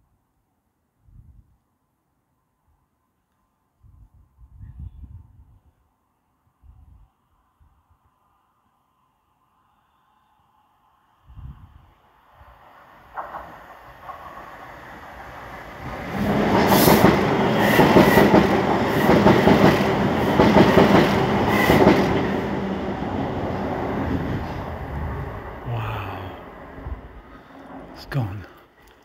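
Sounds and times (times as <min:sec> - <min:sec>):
train passing overhead: 0:08.2 - 0:29.0.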